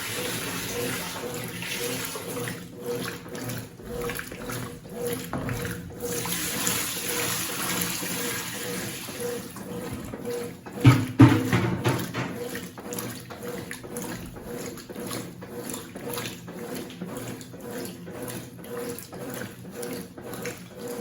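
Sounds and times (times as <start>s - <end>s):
water splashing in washing machine: 0.0s - 21.0s.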